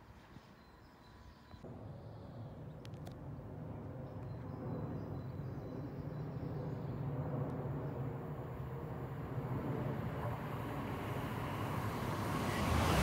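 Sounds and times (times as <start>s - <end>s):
wheel-on-rail noise: 10.4s - 13.0s.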